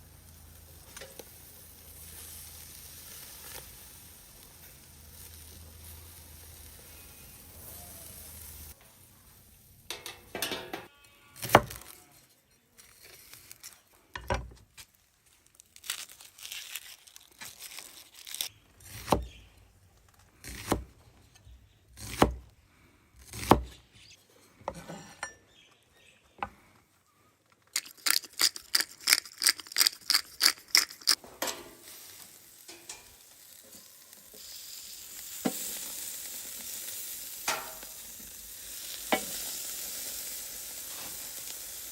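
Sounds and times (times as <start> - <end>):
food sizzling: 0.0 - 10.7, 27.8 - 41.9
kitchen utensils clattering: 9.9 - 10.9.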